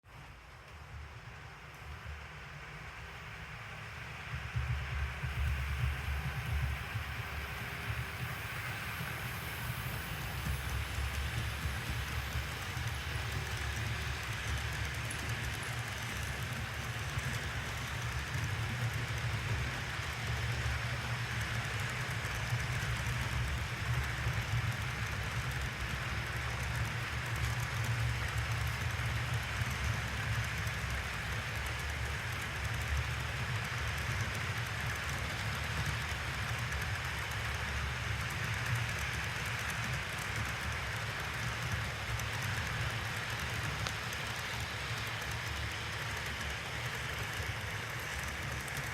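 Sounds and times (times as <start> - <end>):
model locomotive rumbling: 2.8 - 48.9.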